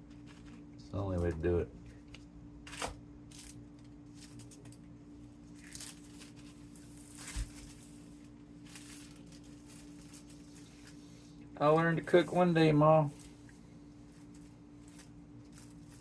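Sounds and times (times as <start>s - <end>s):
steady low hum: 0.0s - 16.0s
dough rustling by hand: 2.7s - 11.4s, 12.0s - 16.0s.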